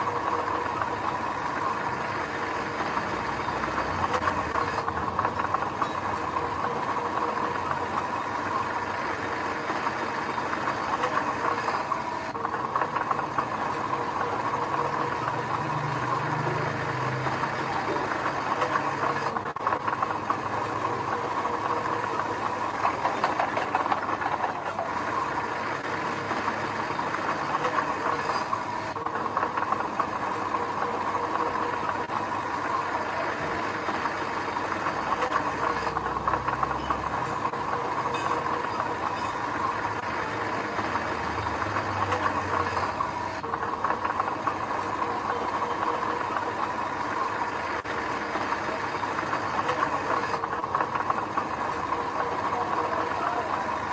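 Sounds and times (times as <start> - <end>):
diesel engine running: 0.0 - 53.9
machinery clatter: 0.0 - 53.9
steady whine: 0.0 - 53.9.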